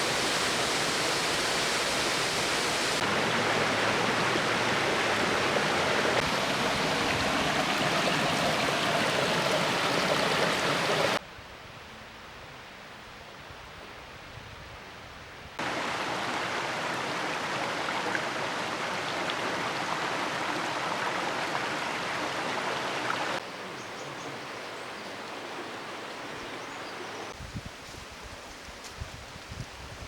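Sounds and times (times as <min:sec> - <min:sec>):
stream and waterfall rushing: 0:00.0 - 0:11.2, 0:15.6 - 0:23.5, 0:24.3 - 0:27.4.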